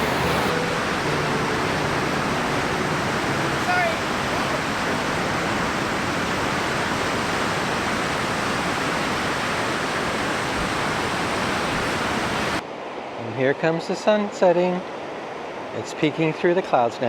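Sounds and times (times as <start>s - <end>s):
surf breaking on beach: 0.0s - 12.6s
wind rumbling on microphone: 0.0s - 12.6s.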